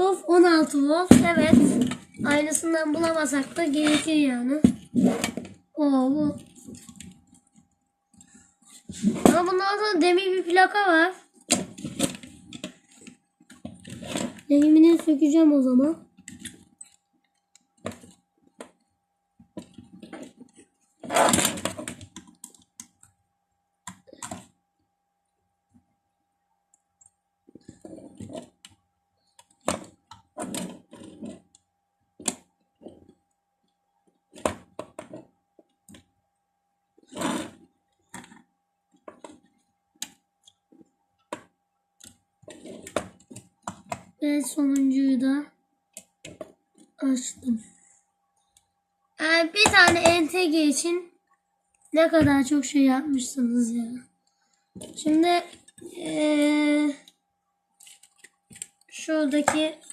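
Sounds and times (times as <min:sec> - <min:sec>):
faint steady whine: 0:00.0 - 0:59.9.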